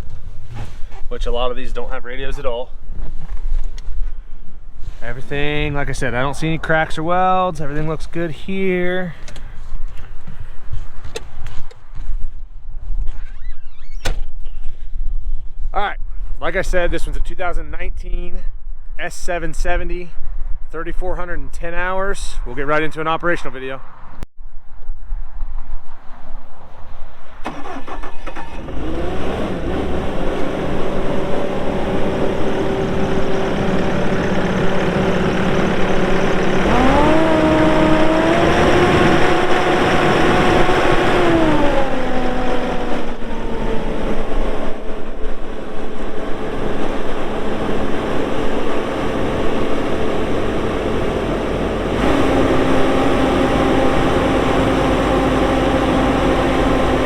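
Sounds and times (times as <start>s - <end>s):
diesel engine starting and revving: 4.9s - 10.2s, 27.4s - 57.0s.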